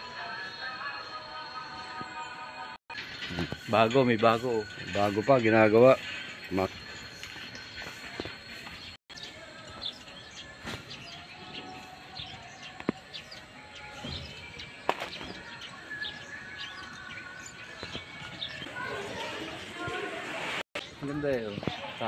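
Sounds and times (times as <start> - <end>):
small birds chirping: 3.0 - 20.2.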